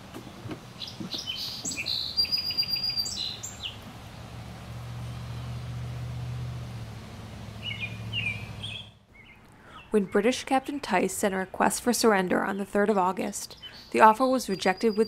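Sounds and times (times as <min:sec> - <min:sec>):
songbirds chirping and whistling: 0:00.2 - 0:03.9, 0:07.6 - 0:10.4, 0:13.5 - 0:15.0.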